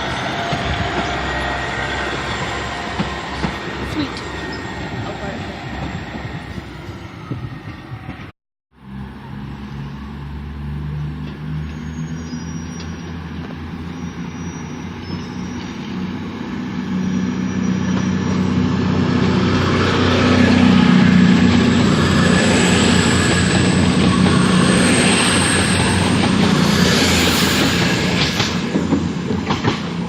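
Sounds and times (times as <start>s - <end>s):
diesel train engine hum: 0.0s - 8.2s, 8.8s - 30.0s
train wheel noise: 0.0s - 8.3s, 14.9s - 30.0s.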